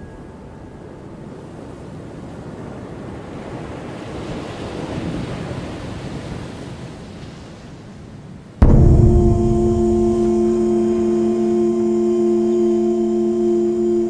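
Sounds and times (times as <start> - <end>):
surf washing over beach: 1.4 - 14.0
gong-like metallic tone: 8.6 - 14.0.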